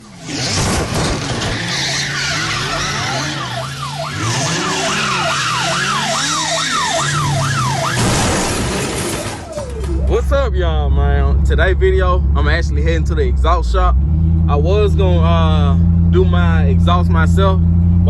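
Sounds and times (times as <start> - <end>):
siren-like wail: 0.0 - 11.3.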